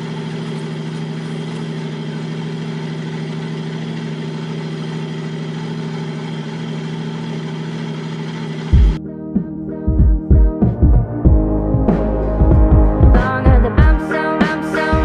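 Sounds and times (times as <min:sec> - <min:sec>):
car engine idling: 0:00.0 - 0:09.0
music with loud drum hit: 0:08.7 - 0:09.0, 0:09.9 - 0:14.0.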